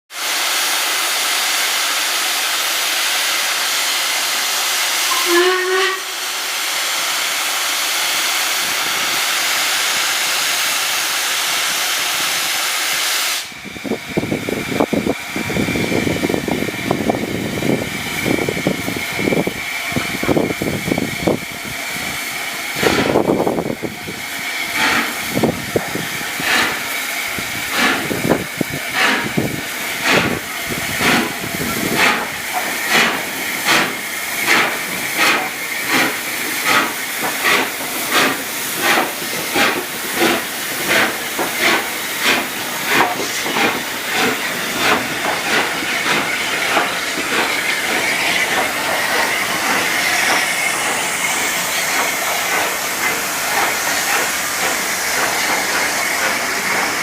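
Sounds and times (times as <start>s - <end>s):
steam locomotive hissing: 0.1s - 57.0s
steam whistle toot: 5.0s - 6.4s
locomotive exhaust chuffing: 22.7s - 57.0s.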